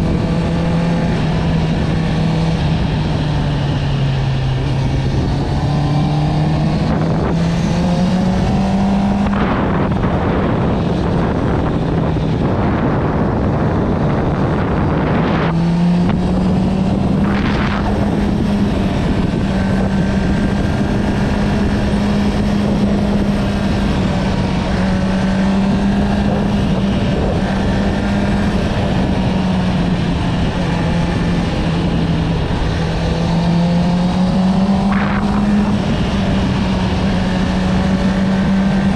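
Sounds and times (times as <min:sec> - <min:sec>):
motorcycle engine revving: 0:00.0 - 0:38.9
wind noise: 0:00.0 - 0:38.9.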